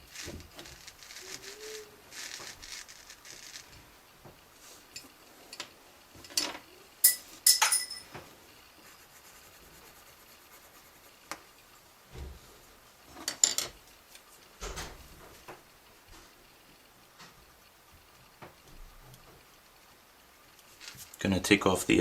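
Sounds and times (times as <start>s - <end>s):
small hard objects clinking: 0.1s - 3.6s.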